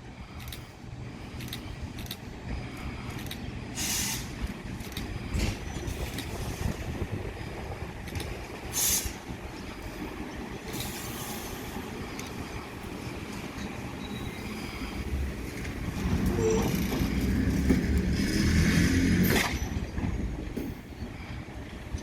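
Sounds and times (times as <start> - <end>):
electric train rumbling: 0.0 - 22.0
hiss bursts: 3.8 - 4.4, 8.7 - 9.3, 10.7 - 11.9.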